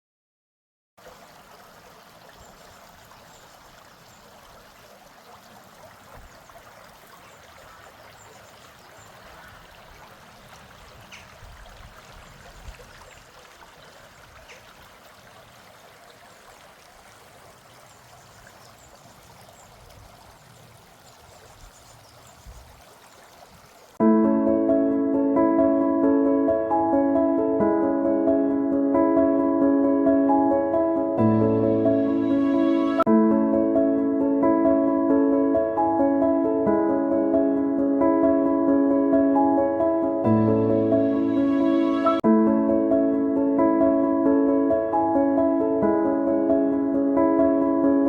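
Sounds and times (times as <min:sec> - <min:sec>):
stream water rushing: 0:01.0 - 0:24.0
music: 0:24.0 - 0:48.0.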